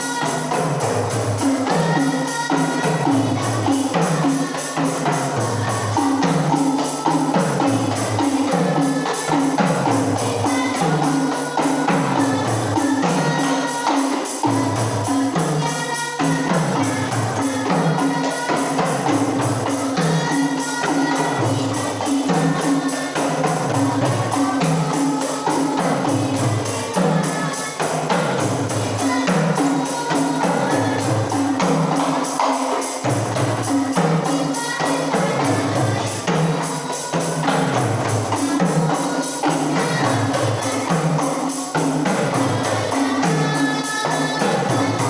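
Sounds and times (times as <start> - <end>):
frame drums playing rhythm: 0.0 - 45.0.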